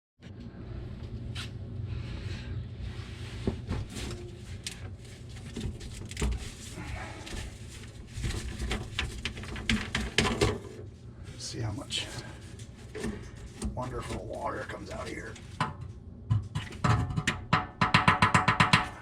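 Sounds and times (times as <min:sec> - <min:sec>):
steady low hum: 0:00.2 - 0:19.0
knocks and clicks of plumbing parts: 0:08.2 - 0:10.8, 0:15.3 - 0:19.0.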